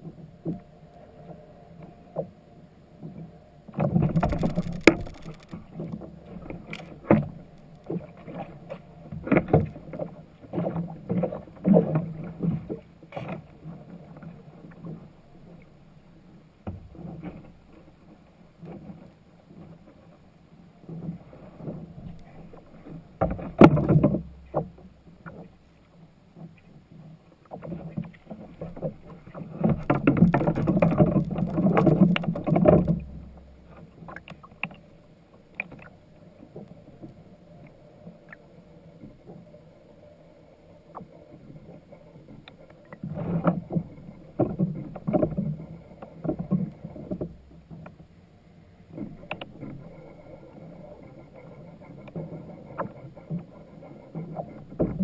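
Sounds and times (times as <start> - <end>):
water splashing against kayak: 3.0 - 15.8, 16.6 - 40.1, 40.7 - 55.0.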